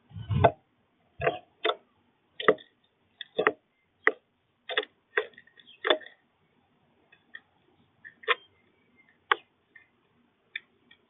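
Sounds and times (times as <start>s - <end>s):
birds pecking at feeder: 2.4s - 6.2s, 7.1s - 11.0s.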